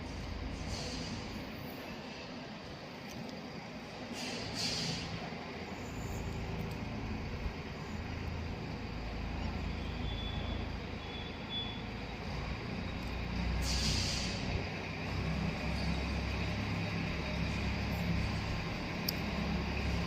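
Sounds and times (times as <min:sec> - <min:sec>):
brief hiss: 0:00.6 - 0:01.4, 0:04.1 - 0:05.2, 0:13.6 - 0:14.4
tractor engine rumbling: 0:04.0 - 0:20.0.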